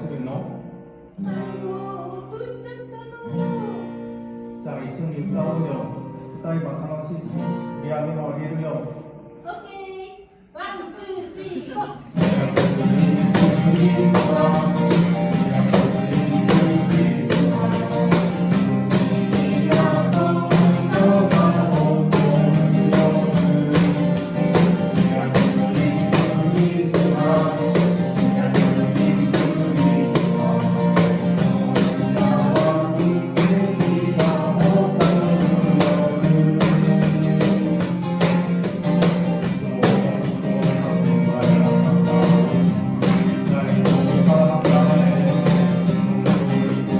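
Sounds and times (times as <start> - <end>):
strummed guitar: 0.0 - 9.4, 12.0 - 46.9
person singing: 11.7 - 37.6
percussion beat: 12.0 - 46.9.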